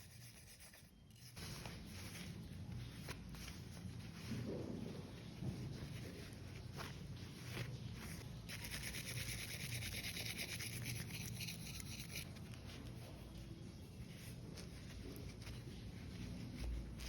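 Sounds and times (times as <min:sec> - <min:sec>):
hand scrubbing scratchy rubbing: 0:00.0 - 0:02.4, 0:05.9 - 0:12.3.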